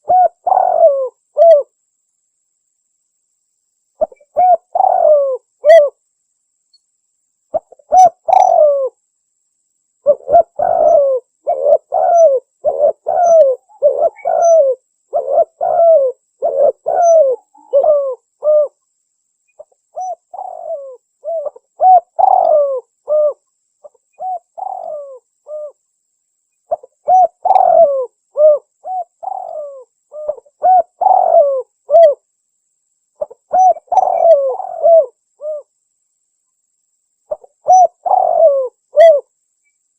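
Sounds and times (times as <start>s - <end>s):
dove cooing: 0.0s - 1.7s, 4.0s - 6.0s, 7.5s - 9.0s, 10.0s - 18.8s, 19.6s - 25.8s, 26.7s - 32.2s, 33.2s - 35.7s, 37.3s - 39.3s.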